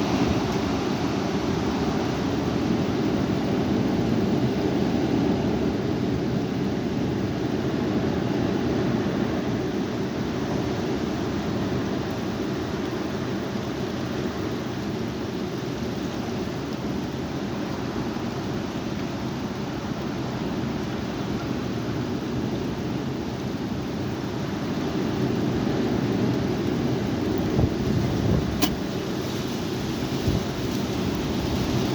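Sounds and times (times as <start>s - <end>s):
high wind blowing: 26.9s - 31.9s.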